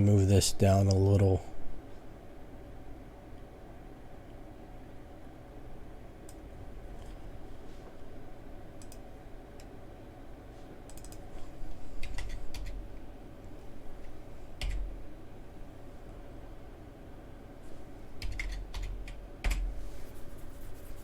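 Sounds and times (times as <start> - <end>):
steady low hum: 0.0 - 21.0
keyboard and mouse clicks: 8.8 - 9.0, 10.9 - 11.2, 12.0 - 12.8, 14.6 - 14.9.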